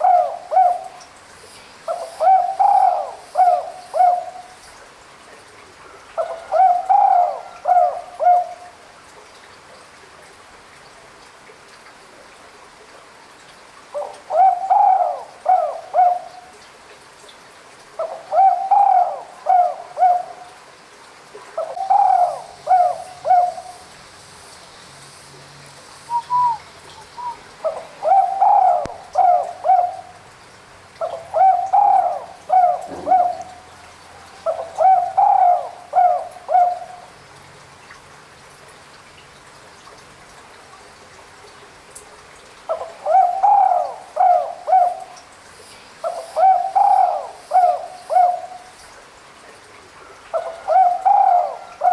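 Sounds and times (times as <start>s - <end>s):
dove cooing: 0.0s - 1.0s, 1.9s - 4.6s, 6.2s - 8.6s, 14.0s - 16.4s, 18.0s - 20.5s, 21.6s - 23.9s, 26.1s - 30.2s, 31.0s - 33.8s, 34.4s - 37.1s, 42.7s - 45.2s, 46.0s - 48.6s, 50.4s - 51.9s.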